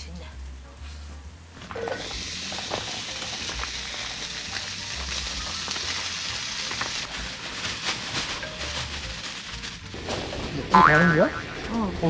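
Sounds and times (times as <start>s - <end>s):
food sizzling in a pan: 1.7s - 10.0s.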